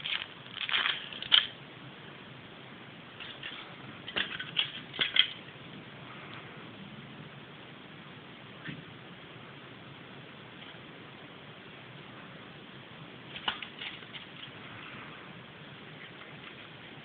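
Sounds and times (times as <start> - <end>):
foil and plastic handling clicks: 0.0 - 1.5
low steady hiss: 0.0 - 17.0.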